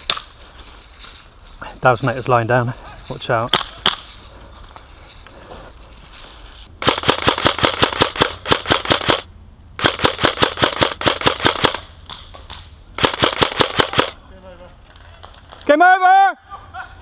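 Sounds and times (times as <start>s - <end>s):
airsoft gun full-auto bursts: 6.8s - 11.8s, 13.0s - 14.2s.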